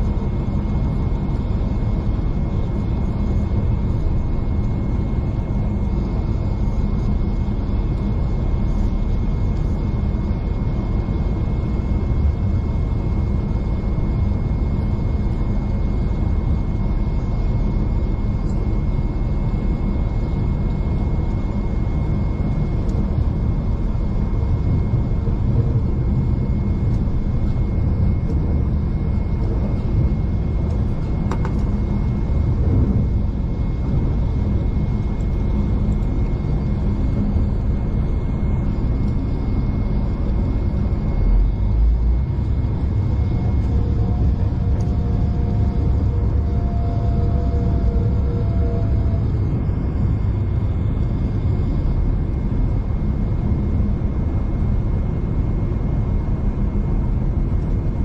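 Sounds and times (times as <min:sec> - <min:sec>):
train rumbling: 0:25.2 - 0:34.6, 0:41.2 - 0:50.2.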